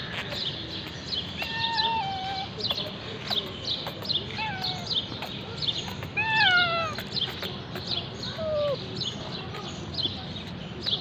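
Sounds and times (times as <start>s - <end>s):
kitten meowing: 1.3s - 2.6s, 4.3s - 5.0s, 5.9s - 7.4s, 8.3s - 8.8s.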